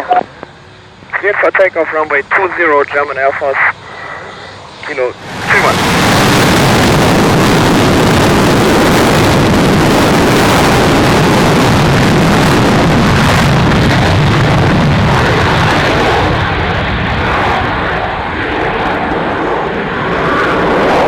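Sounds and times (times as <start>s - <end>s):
jet engines at full power: 0.0s - 21.0s.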